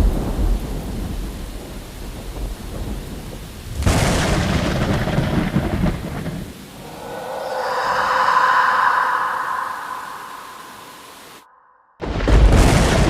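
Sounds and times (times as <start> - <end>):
sharp thunderclap: 3.7 - 6.5, 12.0 - 13.0
thunder rumbling: 3.7 - 13.0.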